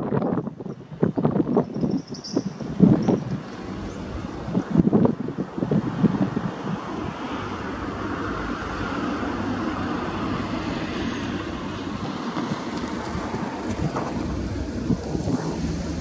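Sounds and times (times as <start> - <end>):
moving train noise: 0.0 - 16.0
locomotive engine humming: 3.2 - 5.6, 7.4 - 16.0.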